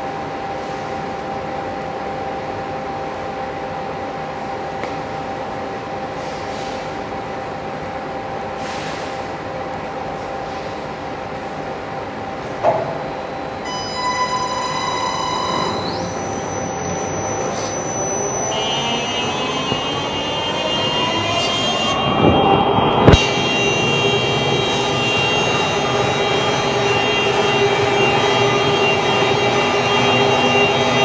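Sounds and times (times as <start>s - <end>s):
motor whine rising in pitch: 13.7s - 31.0s
floor grinder humming: 23.1s - 31.0s.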